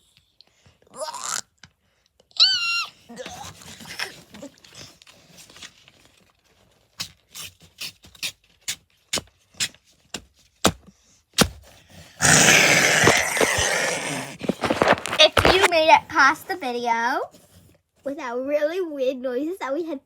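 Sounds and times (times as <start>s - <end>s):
harsh rasping noise: 11.4s - 16.5s.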